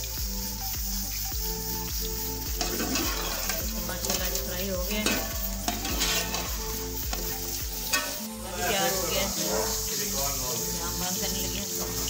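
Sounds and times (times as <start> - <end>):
meat sizzling in oil: 0.0 - 12.0
metal spoon scraping a pot: 2.6 - 4.2, 4.9 - 8.4.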